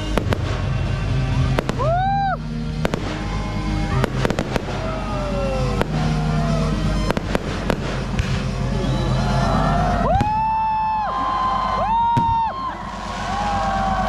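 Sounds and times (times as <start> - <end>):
fireworks bangs: 0.0 - 2.1, 2.7 - 9.4, 10.0 - 10.7, 11.9 - 14.0
music playing: 0.0 - 14.0.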